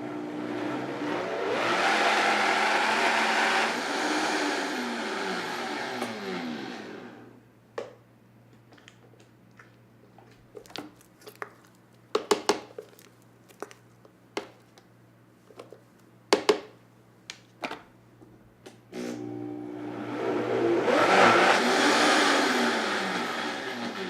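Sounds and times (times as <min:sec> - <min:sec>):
blender motor: 0:00.0 - 0:07.3, 0:18.9 - 0:24.0.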